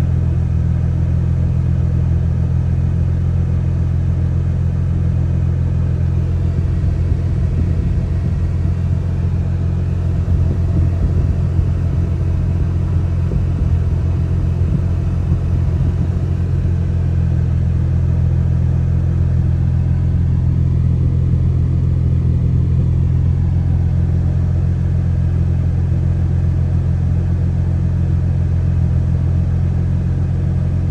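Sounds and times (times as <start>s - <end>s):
car engine idling: 4.5s - 27.0s.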